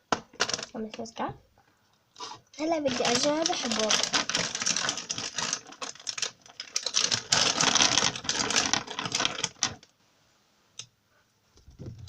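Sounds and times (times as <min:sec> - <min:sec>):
candy sprinkles rattling in container: 0:00.4 - 0:00.8, 0:02.6 - 0:09.8.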